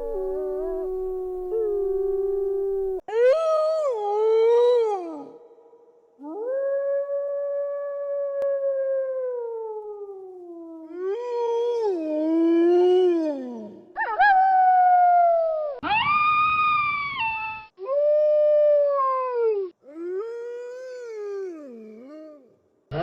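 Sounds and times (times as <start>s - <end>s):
wolves howling: 0.0s - 3.0s.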